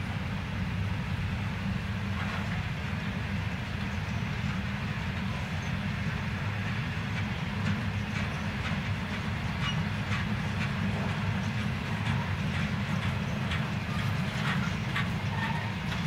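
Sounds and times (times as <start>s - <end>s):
freight train rumbling: 0.0s - 16.0s
wheels clicking on track: 0.0s - 16.0s.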